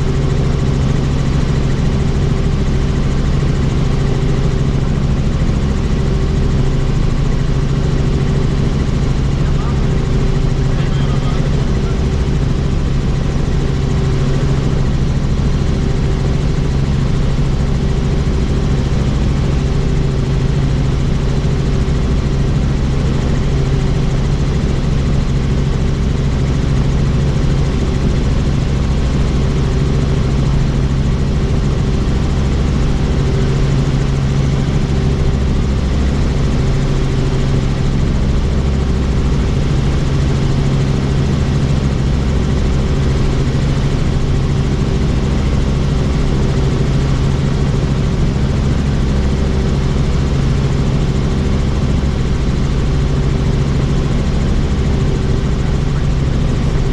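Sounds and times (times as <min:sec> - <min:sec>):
helicopter rotor and engine drone: 0:00.0 - 0:56.9.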